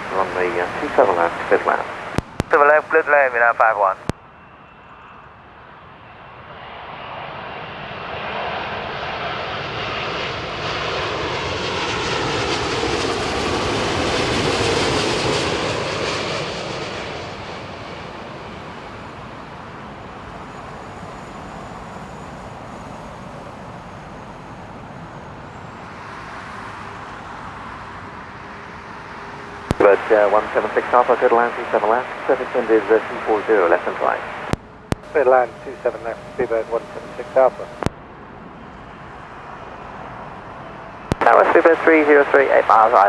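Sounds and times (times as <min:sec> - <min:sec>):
jet airliner passing: 0:00.0 - 0:04.1, 0:06.6 - 0:18.8, 0:29.8 - 0:37.9, 0:39.4 - 0:43.0.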